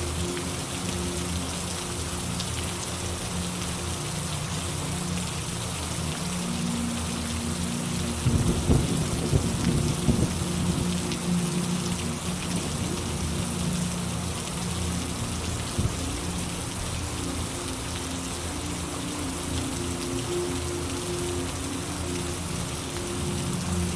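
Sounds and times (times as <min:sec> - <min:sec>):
rain falling: 0:00.0 - 0:23.9
thunder rumbling: 0:08.2 - 0:10.8.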